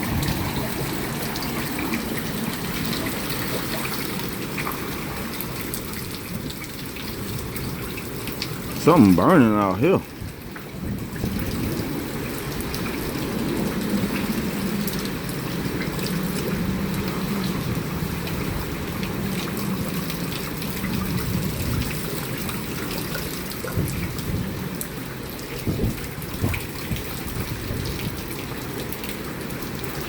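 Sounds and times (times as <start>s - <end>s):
heavy rain: 0.0s - 30.0s
wind: 0.0s - 30.0s.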